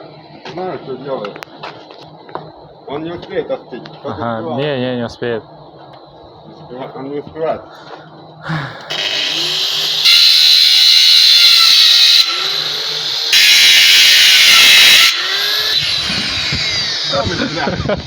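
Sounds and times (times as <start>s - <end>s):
angle grinder whining: 7.8s - 18.0s.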